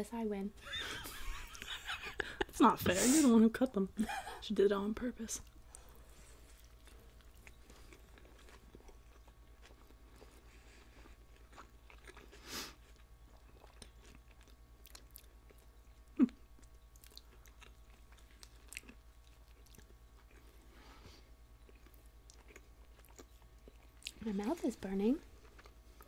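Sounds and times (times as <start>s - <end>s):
chewing and biting with crunches: 5.7s - 20.8s, 21.5s - 24.6s, 25.2s - 26.0s.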